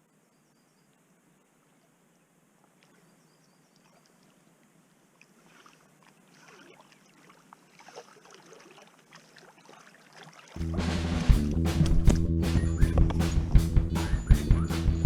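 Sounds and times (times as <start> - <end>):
river water gurgling and lapping: 1.7 - 11.2
small splashes and clicks: 2.6 - 3.1, 3.7 - 10.6.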